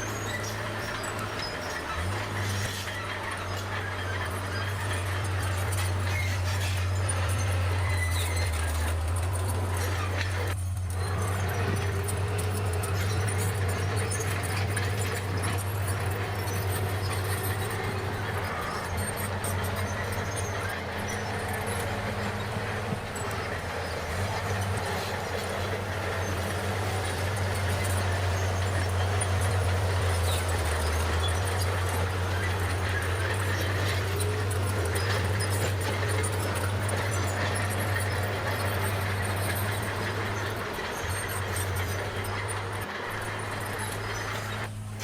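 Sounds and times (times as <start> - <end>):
bulldozer diesel engine droning: 0.0 - 45.0.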